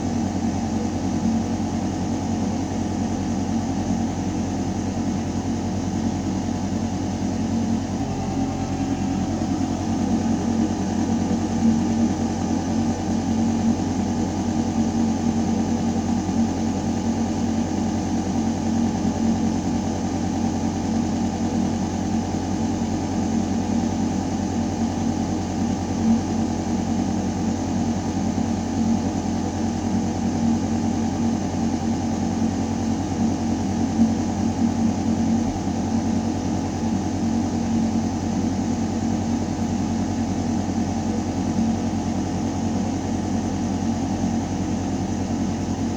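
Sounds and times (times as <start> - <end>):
ventilation system humming: 0.0 - 24.3.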